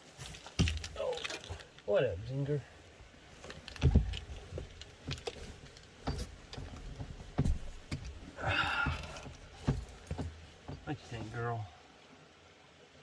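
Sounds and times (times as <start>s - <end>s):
faint background hiss: 0.0s - 13.0s
soft thumps and clicks from handling: 3.4s - 8.2s, 8.8s - 11.4s.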